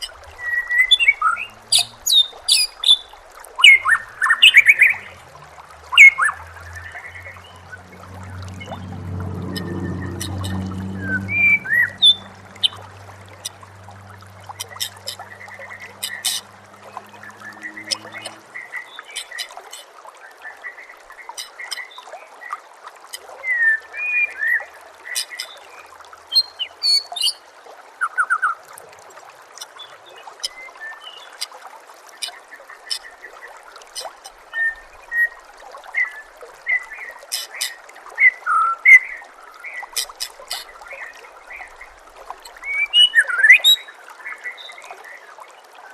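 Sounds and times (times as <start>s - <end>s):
water trickling: 0.0s - 45.9s
low hum: 4.8s - 18.8s.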